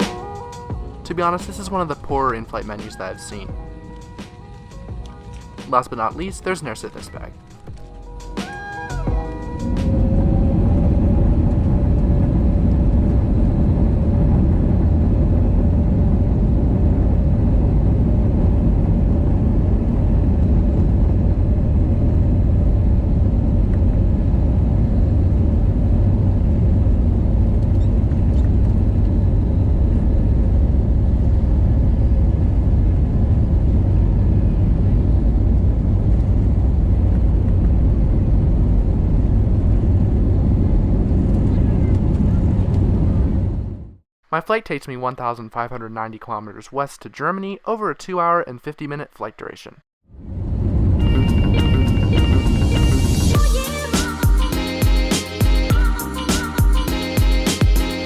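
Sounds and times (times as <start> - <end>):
aircraft cabin engine rumble: 8.0 - 44.0, 50.3 - 53.6.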